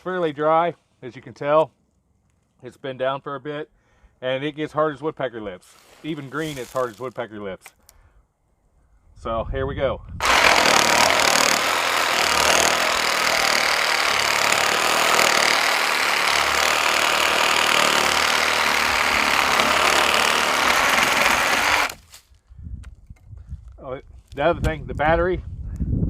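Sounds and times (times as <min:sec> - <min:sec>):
reciprocating saw cutting wood: 0:10.2 - 0:22.1.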